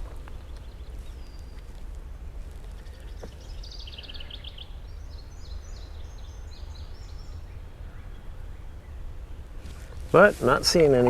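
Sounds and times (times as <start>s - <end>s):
low steady rumble: 0.0s - 11.0s
songbirds singing: 0.0s - 11.0s.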